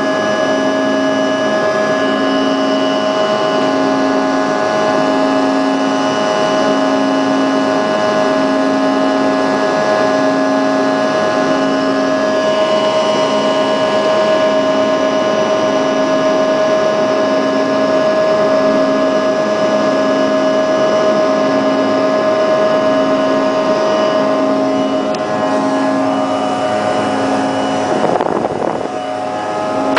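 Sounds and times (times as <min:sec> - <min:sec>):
jet engines whining: 0:00.0 - 0:29.9
low pulsing hum: 0:24.0 - 0:29.9.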